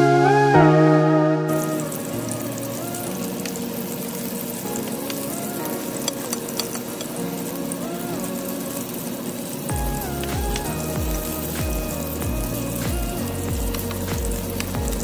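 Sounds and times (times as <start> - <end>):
soft background music: 0.0 - 15.0
food sizzling in hot oil: 1.5 - 15.0
utensils clicking against pan: 5.9 - 7.2.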